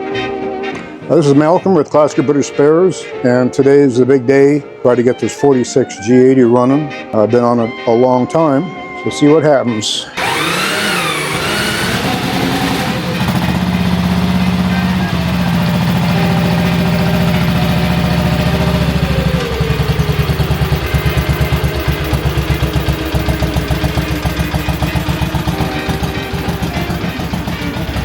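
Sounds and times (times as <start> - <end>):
single-cylinder motorcycle engine running: 10.2 - 28.0.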